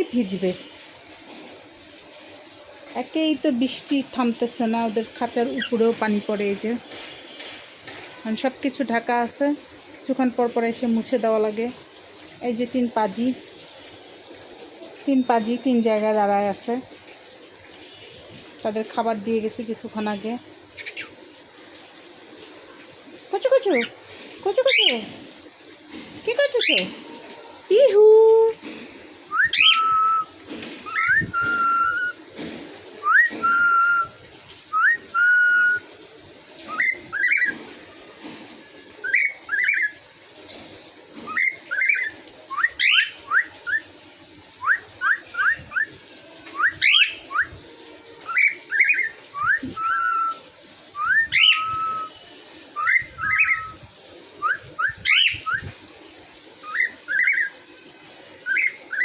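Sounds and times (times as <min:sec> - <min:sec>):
pet bird whistling: 0:29.3 - 0:30.3, 0:30.9 - 0:32.2, 0:33.0 - 0:35.9, 0:48.3 - 0:50.4, 0:51.0 - 0:52.1, 0:52.8 - 0:53.8.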